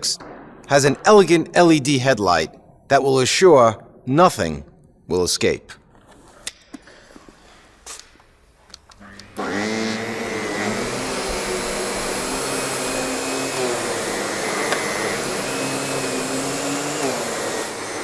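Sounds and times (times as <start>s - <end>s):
vacuum cleaner running: 9.2s - 18.0s.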